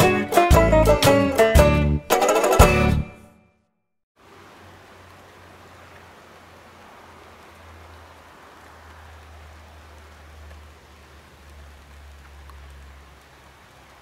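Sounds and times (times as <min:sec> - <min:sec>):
rain pattering on leaves: 0:04.2 - 0:14.0.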